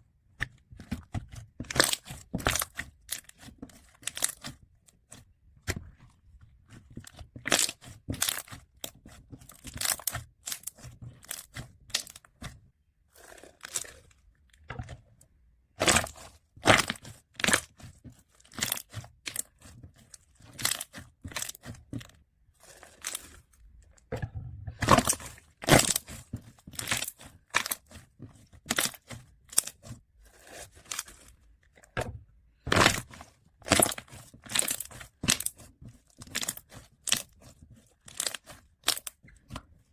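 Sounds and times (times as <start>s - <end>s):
slime popping and crackling: 1.7s - 4.5s, 7.1s - 12.3s, 15.8s - 17.9s, 18.5s - 19.7s, 20.4s - 21.8s, 24.8s - 28.0s, 28.6s - 29.9s, 32.7s - 39.2s.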